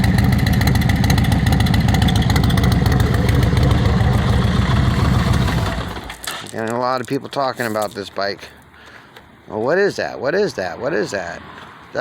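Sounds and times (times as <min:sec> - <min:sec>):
motorcycle engine idling: 0:00.0 - 0:06.3.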